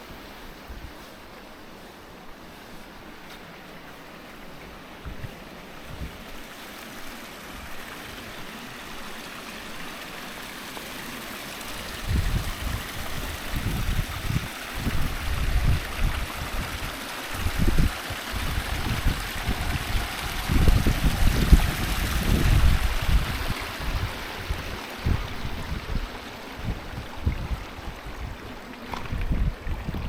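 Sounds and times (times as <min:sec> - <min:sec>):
wind noise on microphone: 0:00.0 - 0:01.2, 0:04.9 - 0:08.6, 0:11.6 - 0:30.0
waterfall and stream flowing: 0:00.0 - 0:30.0.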